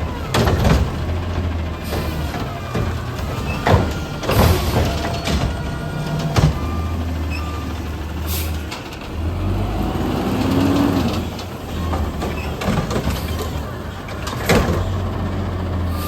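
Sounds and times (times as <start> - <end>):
garbage truck engine running: 0.0 - 16.0.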